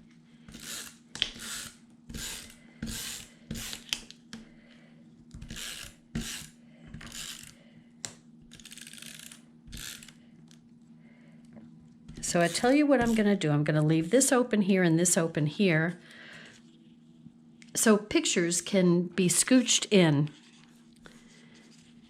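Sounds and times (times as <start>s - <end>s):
paper scraping strokes: 0.4s - 3.9s
ratcheting rattle: 8.5s - 10.2s.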